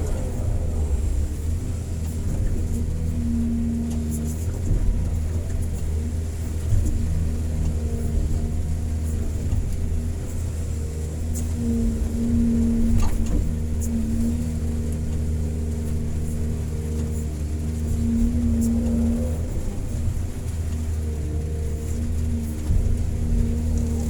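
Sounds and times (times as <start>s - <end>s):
excavator diesel engine: 0.0s - 24.0s
hydraulics whine: 0.0s - 24.0s.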